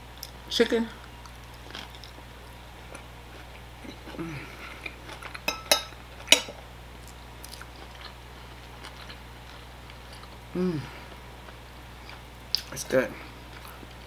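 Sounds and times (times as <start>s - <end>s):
low background hum: 0.0s - 14.0s
chewing: 1.1s - 5.5s, 6.2s - 10.4s, 11.1s - 12.7s, 13.3s - 14.0s
person humming: 4.1s - 4.7s, 10.5s - 11.1s.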